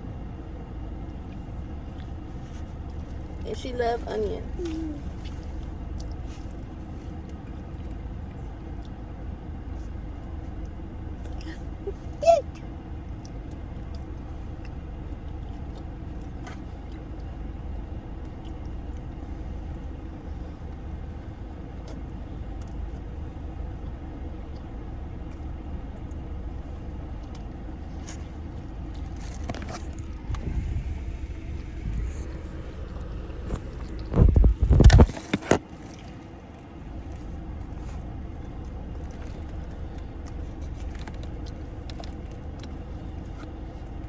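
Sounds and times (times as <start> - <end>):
car interior engine rumble: 0.0 - 44.0.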